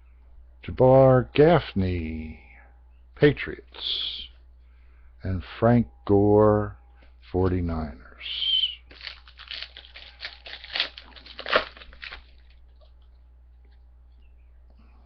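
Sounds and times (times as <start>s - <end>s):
wrapper tearing and crinkling: 8.9s - 13.0s.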